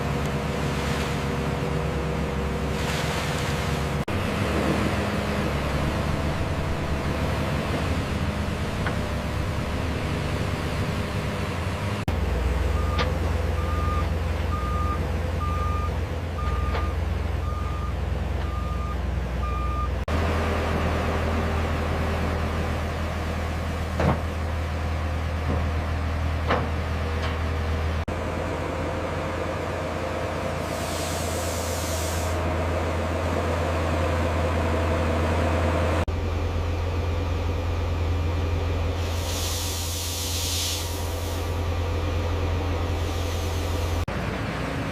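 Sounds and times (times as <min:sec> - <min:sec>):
diesel engine low rumble: 0:00.0 - 0:44.9
reversing alarm beeping: 0:13.6 - 0:20.0
hiss: 0:30.6 - 0:32.4, 0:39.0 - 0:41.6, 0:42.9 - 0:44.0.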